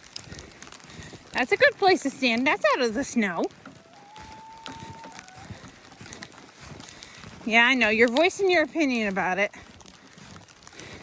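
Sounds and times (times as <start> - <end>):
footsteps crunching in snow: 0.0 - 11.0
dog whining: 3.8 - 6.1.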